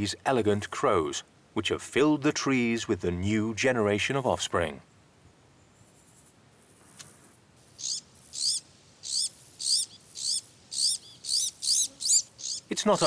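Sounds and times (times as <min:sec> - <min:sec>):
bird chicks begging calls: 0:07.7 - 0:13.0.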